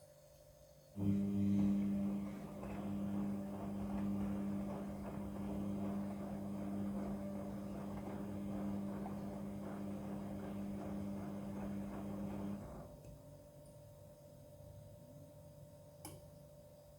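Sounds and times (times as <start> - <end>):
washing machine running: 1.0 - 13.3.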